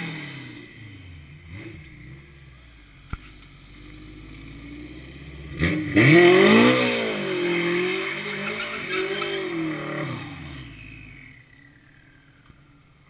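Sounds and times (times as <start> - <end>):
car engine revving: 0.0 - 12.8
tyres squealing: 7.2 - 10.4.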